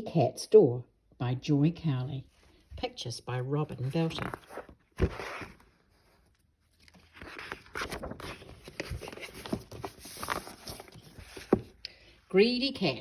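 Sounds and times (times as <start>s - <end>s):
book pages turning: 3.4s - 11.8s.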